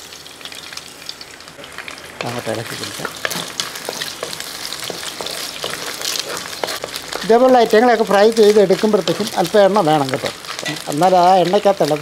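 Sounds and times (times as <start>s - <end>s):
coconut sizzling in oil: 0.0s - 12.0s
wooden spatula stirring: 2.2s - 10.9s.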